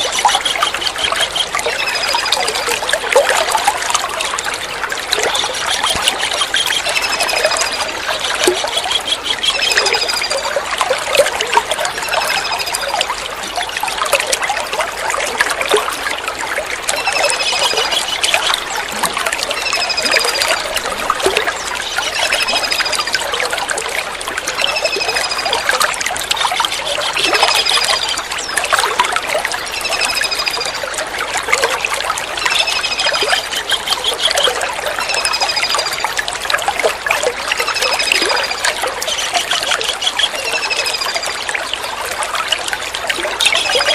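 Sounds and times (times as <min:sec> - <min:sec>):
water trickling: 0:00.0 - 0:43.9
kingfisher calling: 0:05.2 - 0:10.3.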